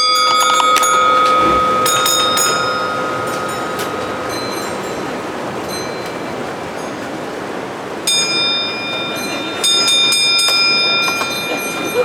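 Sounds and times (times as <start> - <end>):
high-pitched ringing tones: 0.0 - 7.0
steady background noise: 0.0 - 12.0.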